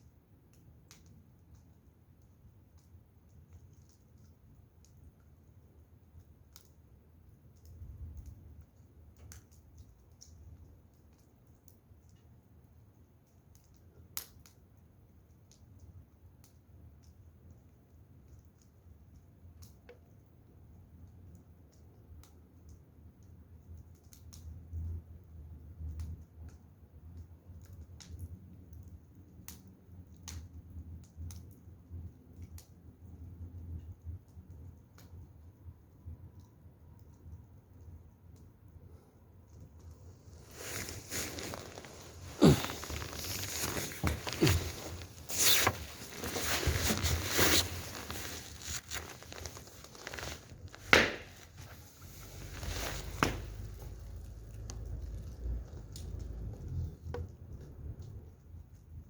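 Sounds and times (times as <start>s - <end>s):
fire crackling and popping: 0.0s - 59.0s
low fire rumble: 13.8s - 59.0s
sharp pop from fire: 50.8s - 51.5s, 53.0s - 53.9s.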